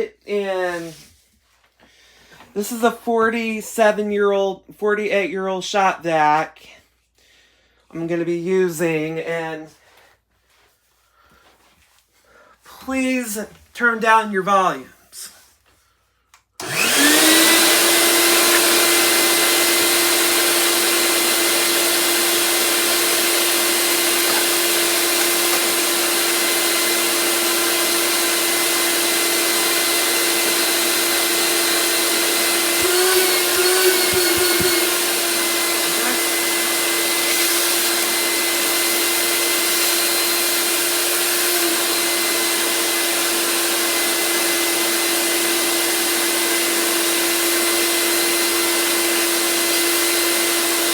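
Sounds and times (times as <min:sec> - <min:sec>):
shop vacuum motor whine: 0:16.6 - 0:50.9.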